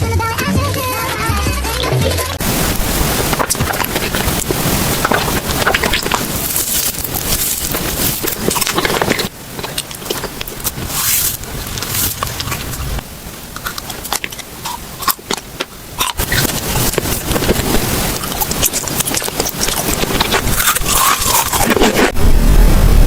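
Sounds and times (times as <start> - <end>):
chewing and crunching: 1.7 - 22.2.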